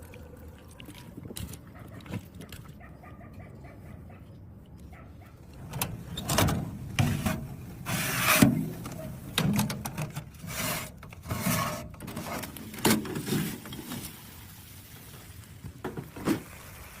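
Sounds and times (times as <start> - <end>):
scraping and rubbing noises: 7.0 - 9.2, 9.9 - 14.1.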